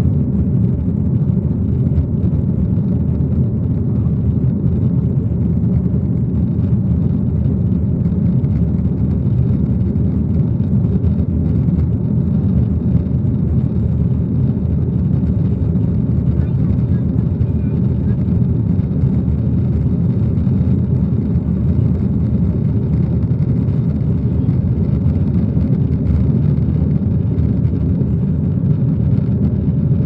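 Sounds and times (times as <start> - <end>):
aeroplane rumble: 0.0 - 30.0.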